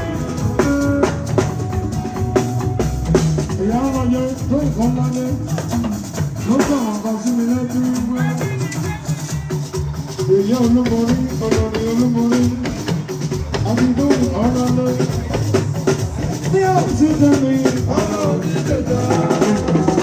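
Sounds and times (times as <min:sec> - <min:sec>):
gliding melody line: 0:00.0 - 0:10.8
drums: 0:00.0 - 0:20.0
shakers: 0:00.0 - 0:20.0.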